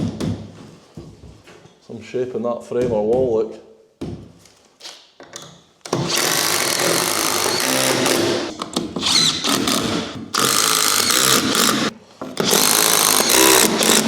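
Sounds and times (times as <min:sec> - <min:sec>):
impact driver hammering screws: 0:05.9 - 0:14.0.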